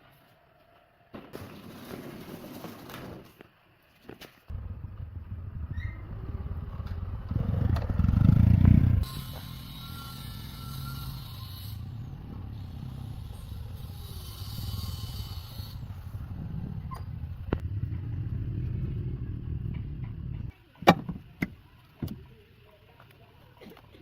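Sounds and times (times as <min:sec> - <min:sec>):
vehicle engine rumbling: 0:04.5 - 0:22.4.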